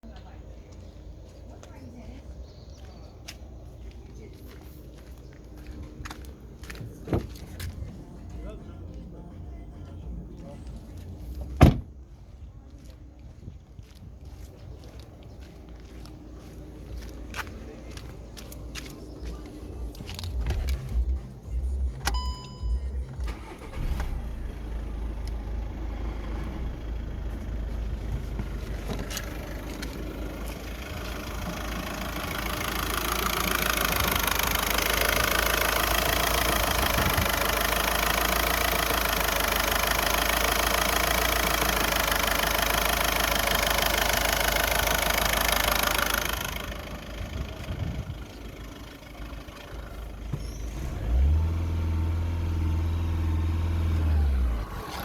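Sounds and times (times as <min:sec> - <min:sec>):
diesel engine idling and revving: 0:00.0 - 0:55.0.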